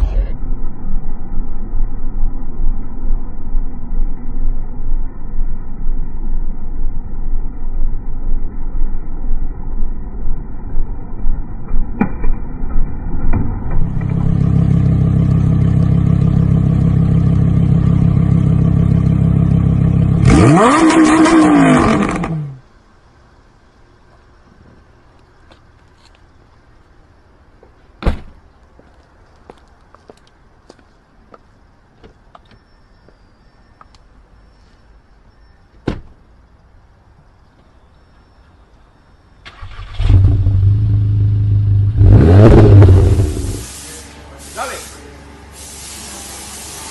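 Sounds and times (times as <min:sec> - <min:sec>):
engine revving: 0:13.8 - 0:22.6, 0:39.5 - 0:43.7
vehicle door shutting: 0:35.8 - 0:36.2.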